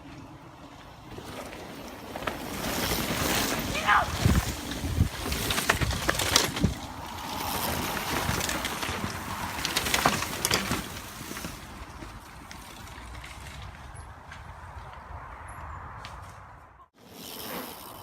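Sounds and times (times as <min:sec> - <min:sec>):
bike knocking and rattling: 0:00.0 - 0:18.0
wind rushing over microphone: 0:02.8 - 0:10.0.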